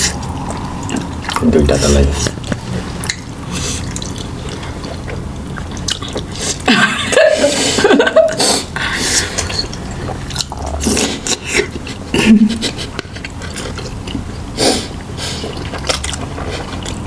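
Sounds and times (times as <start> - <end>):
wet chewing: 0.0 - 6.7, 8.9 - 17.0.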